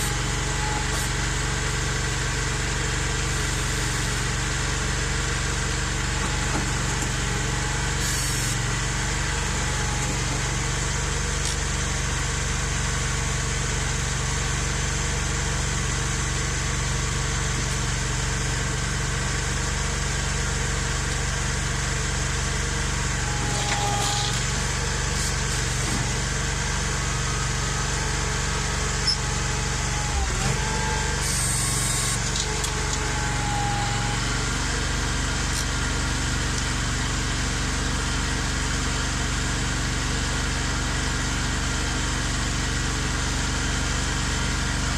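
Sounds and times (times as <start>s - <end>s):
tractor engine running: 0.0s - 44.9s
short squeaks: 23.3s - 26.2s, 28.9s - 29.4s.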